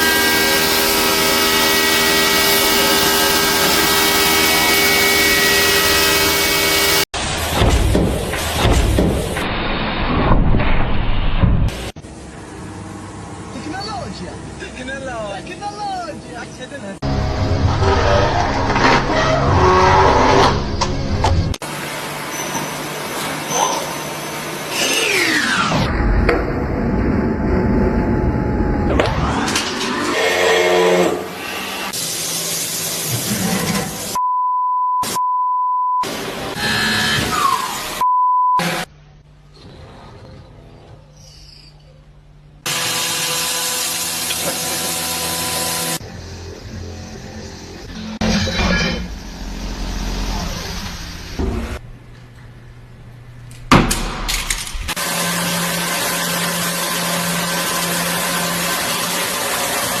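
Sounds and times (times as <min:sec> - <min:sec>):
loud noisy machine: 0:00.0 - 0:08.6, 0:17.0 - 0:34.2, 0:42.6 - 0:51.8, 0:54.3 - 1:00.0
low hum: 0:25.7 - 0:30.2, 0:46.0 - 0:55.0
electronic bleep tone: 0:34.2 - 0:36.1, 0:38.0 - 0:38.6.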